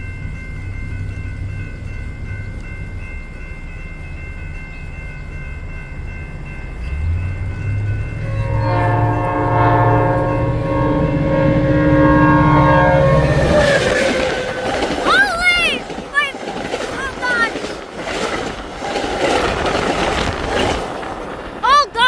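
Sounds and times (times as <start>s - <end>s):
diesel locomotive rumble: 0.0s - 22.0s
train horn chord: 6.9s - 14.6s.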